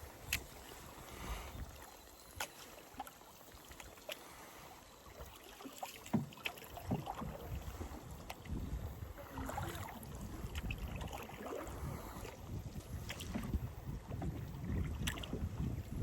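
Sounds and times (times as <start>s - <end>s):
paddle splashing water: 0.0s - 16.0s
wind rumble on microphone: 6.8s - 16.0s.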